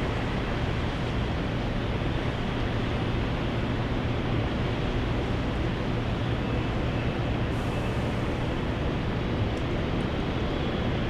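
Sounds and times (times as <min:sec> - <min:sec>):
jet airliner engines: 0:00.0 - 0:11.0.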